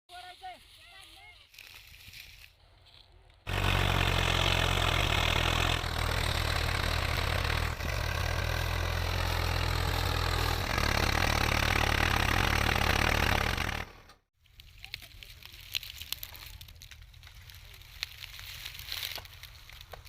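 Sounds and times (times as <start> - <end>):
tractor diesel engine running: 3.5 - 14.2.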